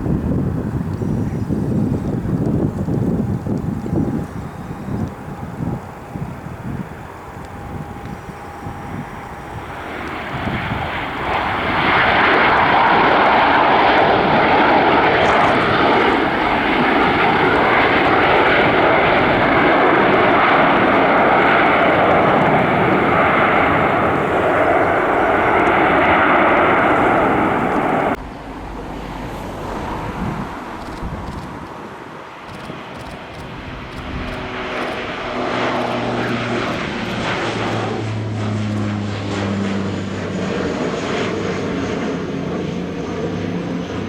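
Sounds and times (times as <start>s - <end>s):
airliner engines passing: 0.0s - 44.0s.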